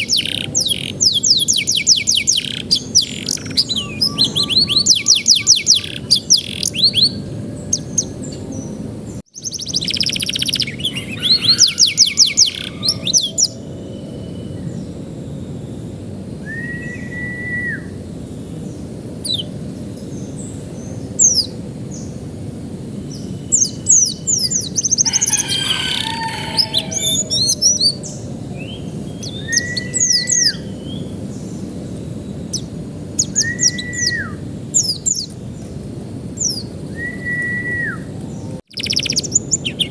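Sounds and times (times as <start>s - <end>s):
canary trills and chirps: 0.0s - 8.8s, 9.4s - 14.1s, 23.5s - 31.0s, 38.7s - 39.9s
canary whistled notes: 1.5s - 8.0s, 11.0s - 13.5s, 16.4s - 17.9s, 29.3s - 30.7s, 33.4s - 34.4s, 36.9s - 38.1s.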